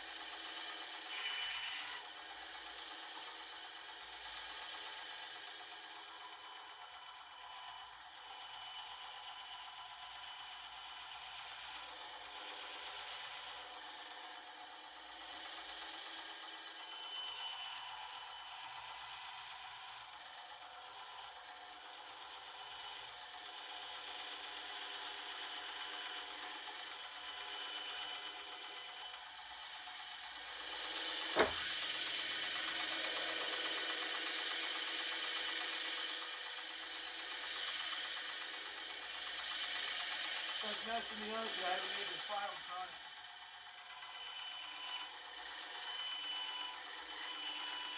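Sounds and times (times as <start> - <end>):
bandsaw cutting with high whine: 0.0 - 47.9
sharp knock: 31.4 - 31.7
bandsaw cutting wood: 40.6 - 42.9.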